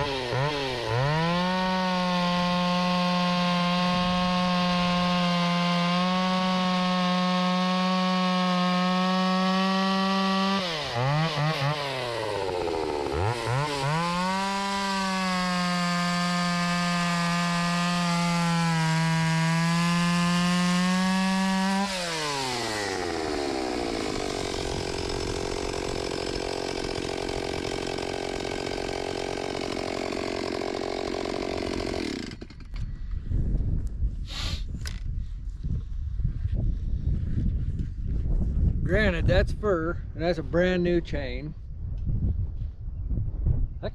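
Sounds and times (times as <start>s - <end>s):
chainsaw cutting wood: 0.0s - 33.0s.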